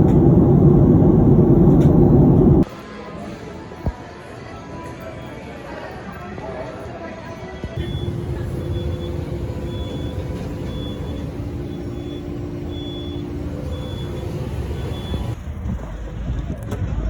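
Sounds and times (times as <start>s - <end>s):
heavy vehicle engine rumbling: 0.0s - 2.6s, 7.8s - 17.0s.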